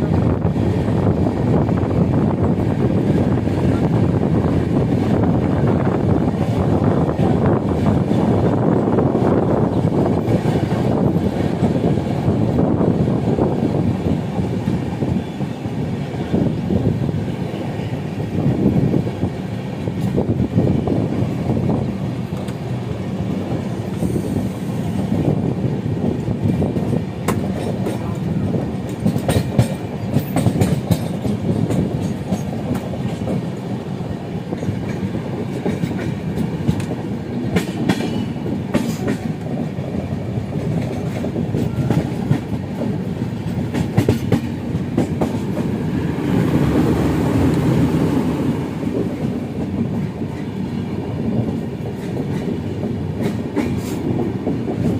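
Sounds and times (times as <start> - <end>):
train rumble: 0.0 - 54.9
wheels clicking over rail joints: 26.1 - 47.9, 48.8 - 54.9.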